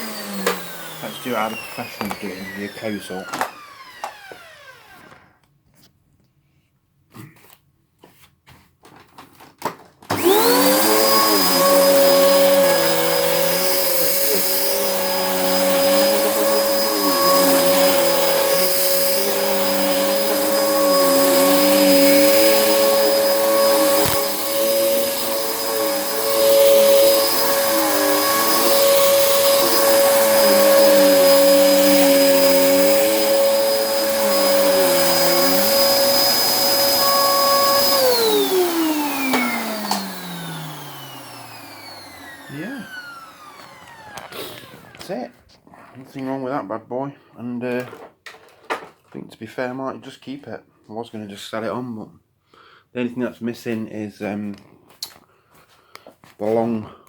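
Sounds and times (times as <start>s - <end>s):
vacuum cleaner motor whining: 0.0s - 5.3s, 10.1s - 45.2s.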